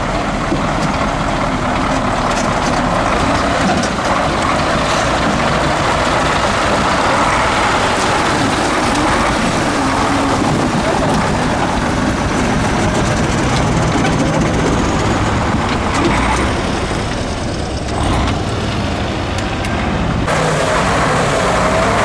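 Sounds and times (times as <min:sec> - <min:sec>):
truck diesel engine running: 0:00.0 - 0:22.0.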